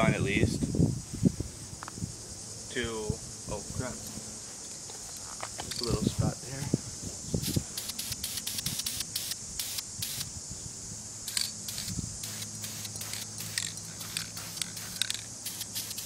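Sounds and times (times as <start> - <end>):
aerosol spray paint bursts: 7.4 - 10.4, 11.2 - 16.0.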